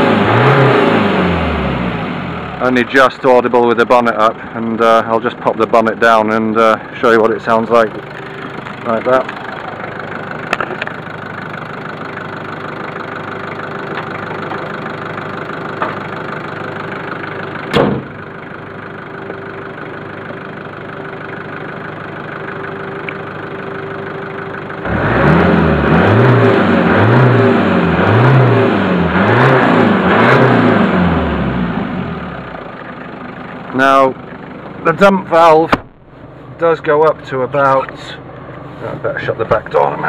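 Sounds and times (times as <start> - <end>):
engine revving with turbo dump valve: 0.0 - 2.7, 24.8 - 32.6
turbocharged car engine idling: 0.0 - 40.0
car bonnet thump: 17.7 - 18.2, 35.7 - 36.0.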